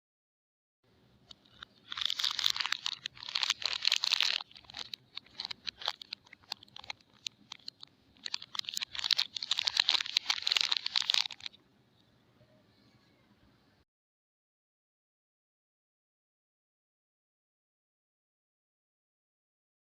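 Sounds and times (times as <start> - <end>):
small crackles of wrapper: 1.4 - 11.6
packaging crinkling and tearing: 1.5 - 11.6.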